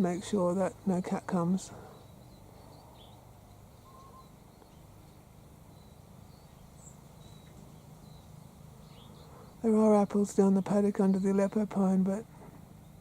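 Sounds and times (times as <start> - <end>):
low steady hum: 0.0 - 13.0
soft bird chirps: 0.7 - 9.7.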